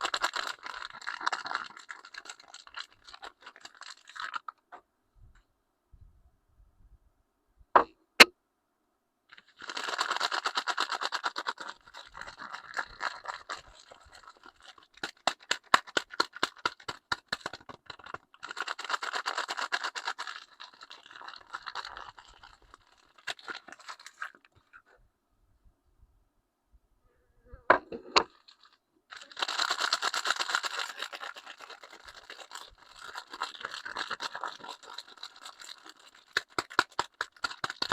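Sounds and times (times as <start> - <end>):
wrapper crinkling and tearing: 0.0 - 4.6, 9.3 - 24.6, 28.2 - 37.9.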